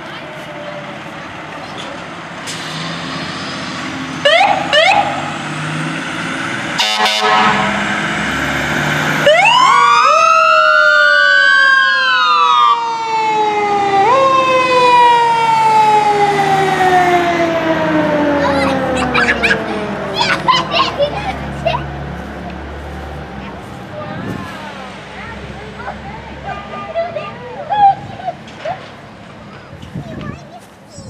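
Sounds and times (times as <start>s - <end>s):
truck engine rumble: 0.0s - 31.0s
fire truck siren wailing: 3.8s - 23.8s
horn blast: 6.8s - 8.1s.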